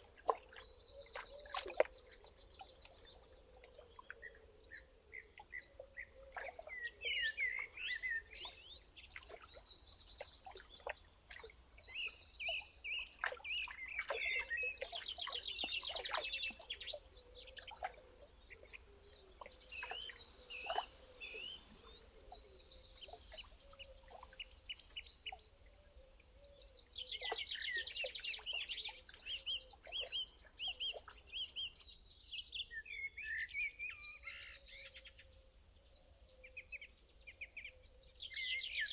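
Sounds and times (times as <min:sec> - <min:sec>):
bird chips and calls: 0:00.0 - 0:04.4, 0:05.1 - 0:25.5, 0:26.4 - 0:31.8.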